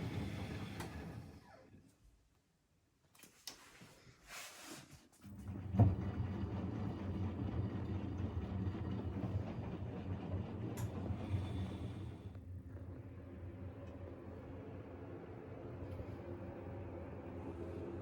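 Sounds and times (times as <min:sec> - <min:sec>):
washing machine humming: 0:00.0 - 0:01.5, 0:05.4 - 0:18.0.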